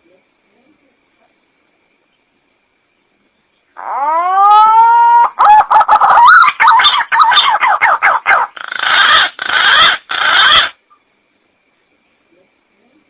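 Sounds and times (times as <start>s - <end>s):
distorted recorded pigeon call: 3.7s - 11.0s.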